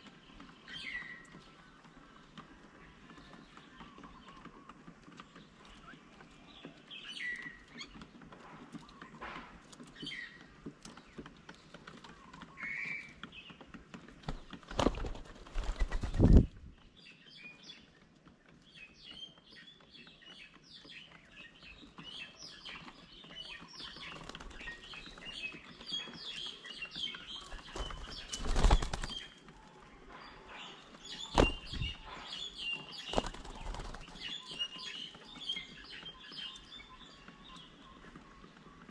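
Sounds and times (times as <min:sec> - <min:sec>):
small birds chirping: 0:00.0 - 0:38.9
wing flapping: 0:07.6 - 0:16.8, 0:22.8 - 0:36.0.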